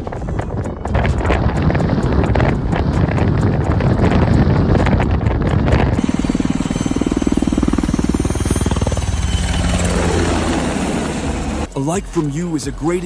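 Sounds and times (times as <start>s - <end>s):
engine running with rapid pulse: 0.0s - 11.7s
wind buffeting microphone: 0.0s - 11.7s.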